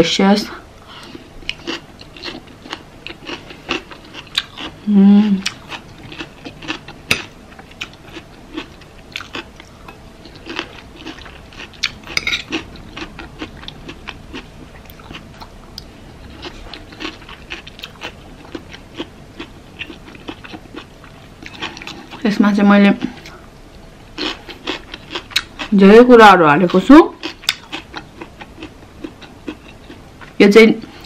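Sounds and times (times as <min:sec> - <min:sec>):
chewing crunches: 0:01.0 - 0:22.2, 0:24.2 - 0:25.7, 0:26.6 - 0:30.4.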